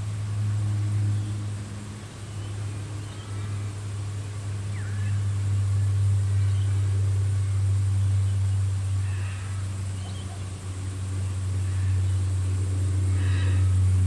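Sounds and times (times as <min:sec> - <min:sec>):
steady low hum: 0:00.0 - 0:14.0
bird chirps: 0:10.0 - 0:10.5.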